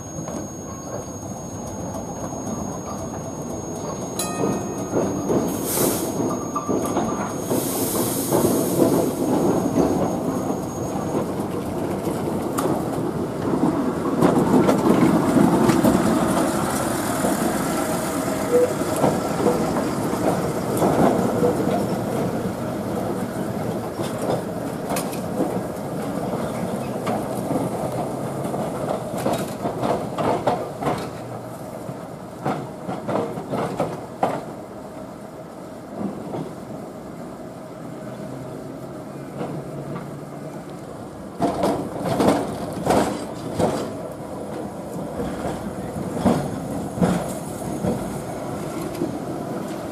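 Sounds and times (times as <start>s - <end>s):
tram wheels rumbling and clacking: 0.0s - 49.9s.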